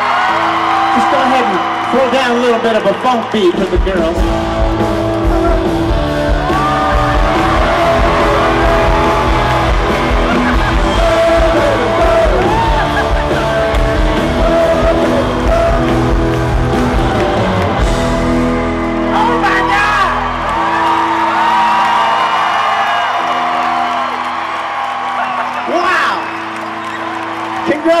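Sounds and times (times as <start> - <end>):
crowd yelling and whooping: 0.0 - 28.0
live funk band playing: 3.7 - 19.4.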